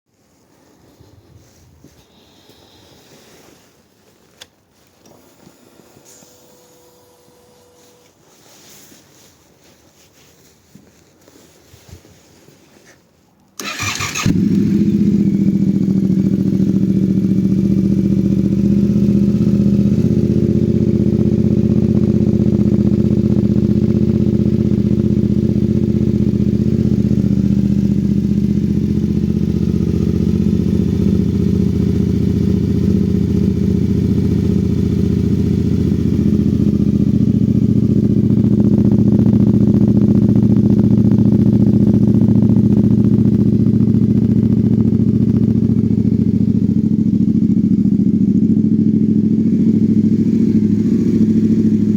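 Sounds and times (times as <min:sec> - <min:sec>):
starter motor cranking: 0:13.6 - 0:14.5
motorcycle engine idling: 0:13.6 - 0:51.9.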